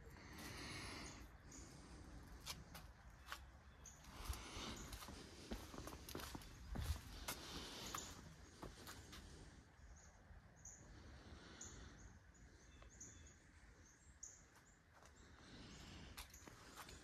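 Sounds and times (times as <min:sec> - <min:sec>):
small bird high chirps: 0:03.2 - 0:04.1.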